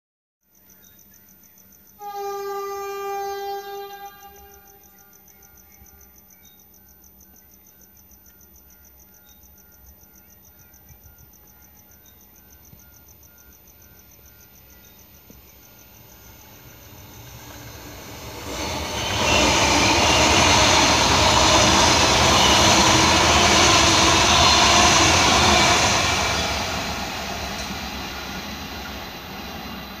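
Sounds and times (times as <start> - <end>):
train rushing past: 15.0 - 30.0.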